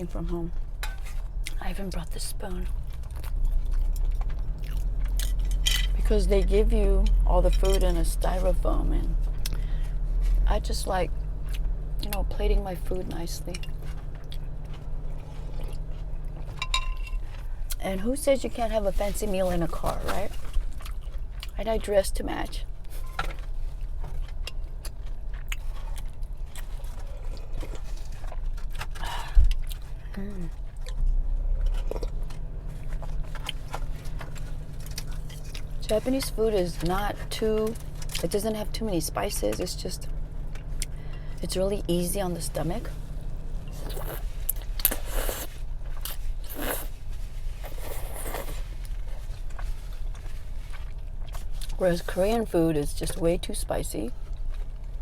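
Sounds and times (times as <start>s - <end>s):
low car cabin hum: 0.0s - 47.7s, 48.5s - 55.0s
person chewing crunchy food: 2.8s - 5.6s, 13.7s - 17.8s, 20.4s - 21.6s, 23.7s - 30.0s, 30.7s - 35.9s, 43.0s - 51.8s.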